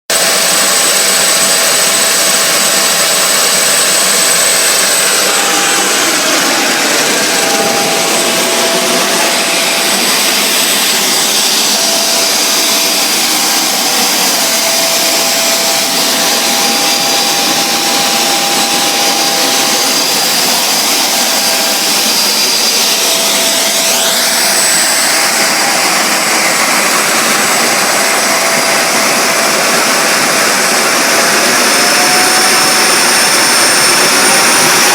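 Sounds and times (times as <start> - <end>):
high engine whine: 0.1 - 34.9
turboshaft engine jet rush: 0.1 - 34.9.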